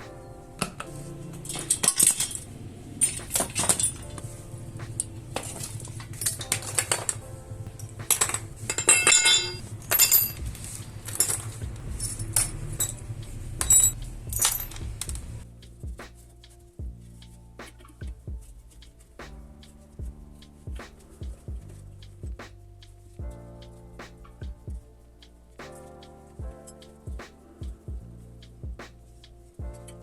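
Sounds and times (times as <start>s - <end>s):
metallic clinks of hand tools: 8.1s - 10.4s.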